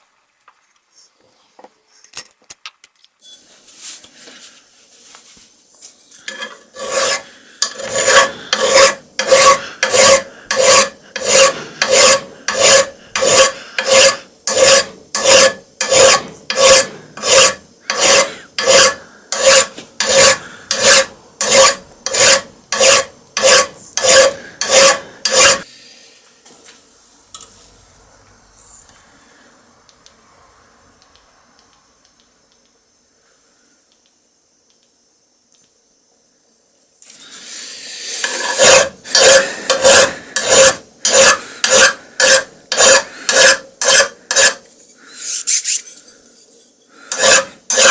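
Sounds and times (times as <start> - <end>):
hand file rasping on metal: 6.2 - 25.7, 37.6 - 45.9, 47.0 - 47.9.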